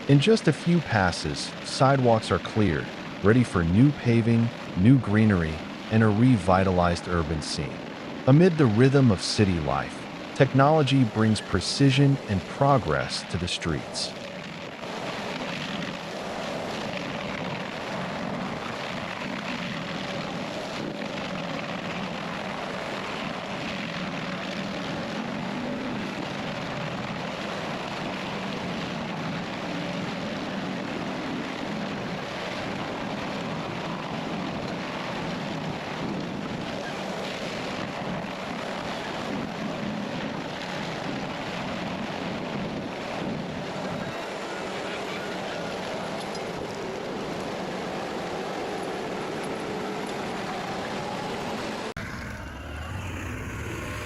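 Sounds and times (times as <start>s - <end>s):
machine engine running under load: 44.2s - 54.0s.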